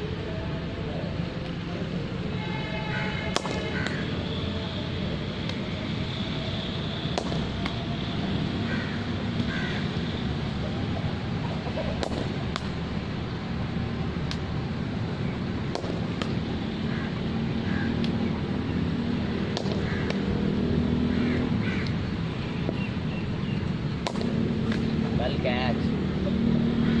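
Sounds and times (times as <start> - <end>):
bat striking cricket ball: 3.3 - 4.0, 7.1 - 7.8, 11.9 - 12.7, 15.7 - 16.4, 19.5 - 20.2, 24.0 - 24.9.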